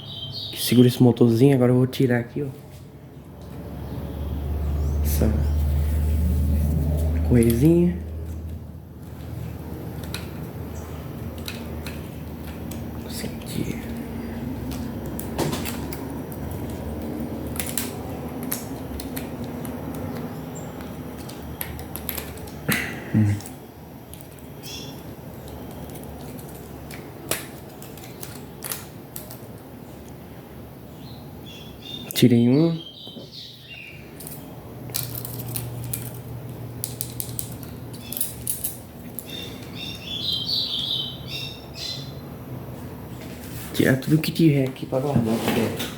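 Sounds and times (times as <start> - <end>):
clicks and knocks of parts handled: 7.0 - 10.6, 11.2 - 13.1, 14.6 - 30.2, 34.1 - 39.8.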